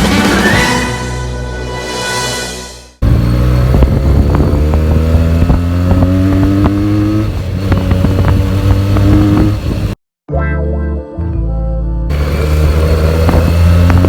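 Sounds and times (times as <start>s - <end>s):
exhaust cracks: 3.0s - 10.0s, 12.1s - 14.0s
motorcycle engine revving: 3.0s - 10.0s, 12.1s - 14.0s.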